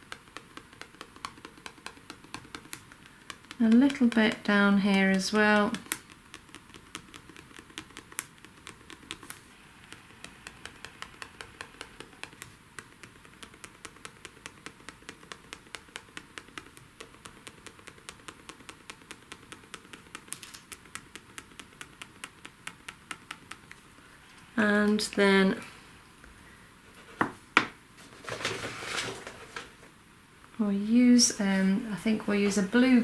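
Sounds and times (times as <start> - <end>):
glue pen tapping on card: 0.0 - 23.8.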